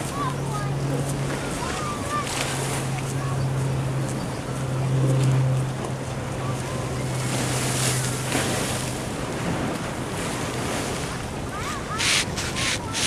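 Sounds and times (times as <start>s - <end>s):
waves washing against a wall: 7.0s - 13.0s.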